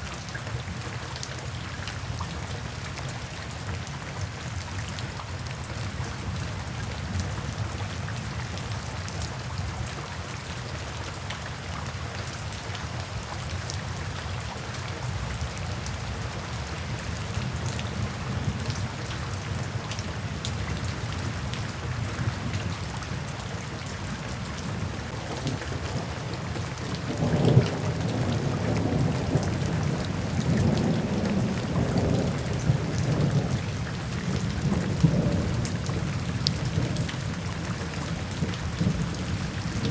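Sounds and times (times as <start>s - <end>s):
steady rain falling: 0.0s - 39.9s
thunder crack and rumble: 25.1s - 37.6s, 38.3s - 39.9s.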